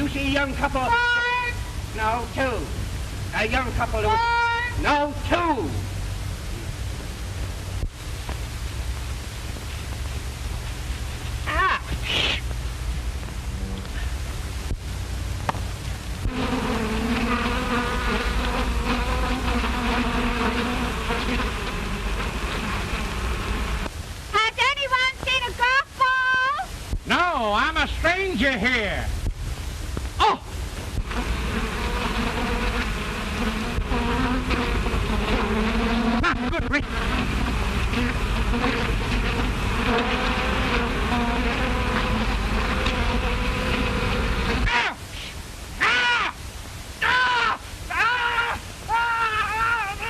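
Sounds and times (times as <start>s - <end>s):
old film soundtrack hiss and hum: 0.0s - 50.0s
bees buzzing: 9.9s - 23.9s, 31.0s - 44.8s.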